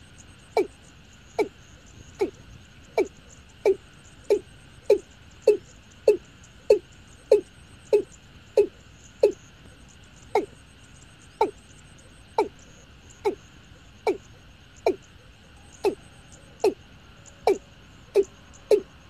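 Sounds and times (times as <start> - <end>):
bird calling hollow notes: 3.0 - 9.4, 10.3 - 10.6, 12.2 - 12.6, 14.0 - 16.8, 17.4 - 19.0.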